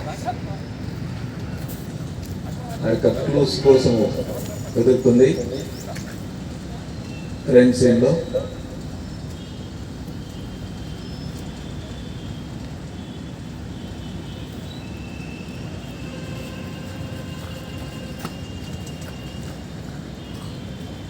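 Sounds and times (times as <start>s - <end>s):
low outdoor rumble: 0.0s - 14.4s.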